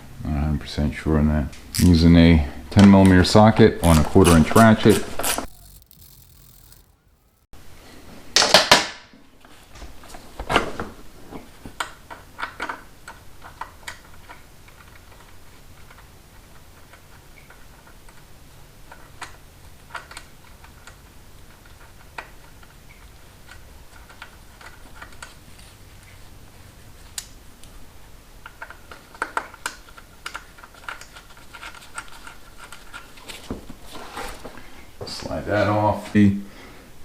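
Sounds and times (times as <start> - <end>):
socket ratchet clicking: 5.2 - 7.4.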